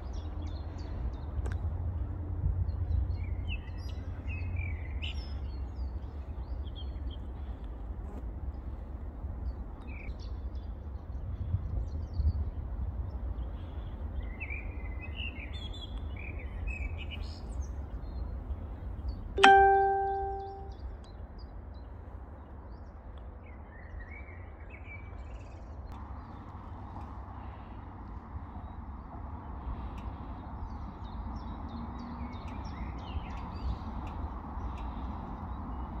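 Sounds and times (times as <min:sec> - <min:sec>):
small birds chirping: 0:02.7 - 0:07.7, 0:13.1 - 0:36.0
ringing metallic strike: 0:19.4 - 0:20.7.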